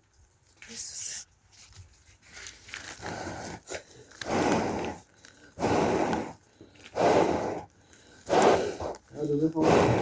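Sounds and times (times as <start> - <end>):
person blowing on fire: 2.9 - 10.0.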